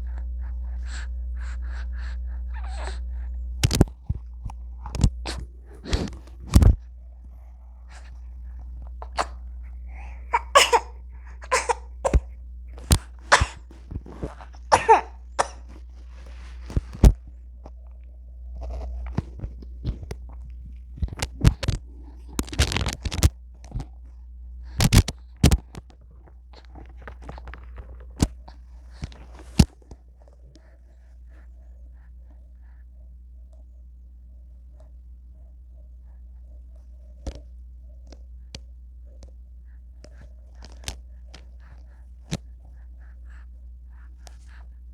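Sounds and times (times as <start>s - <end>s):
low steady hum: 0.0s - 44.9s
baby vocal noises: 2.5s - 3.0s, 9.0s - 12.3s, 12.9s - 15.6s
baby coughing: 9.0s - 9.4s, 10.0s - 12.3s, 13.3s - 13.7s, 14.7s - 15.7s.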